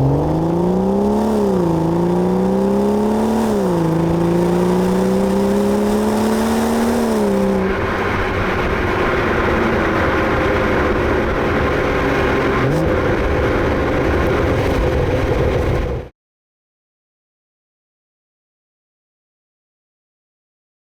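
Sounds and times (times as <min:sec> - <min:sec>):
car engine accelerating: 0:00.0 - 0:16.1.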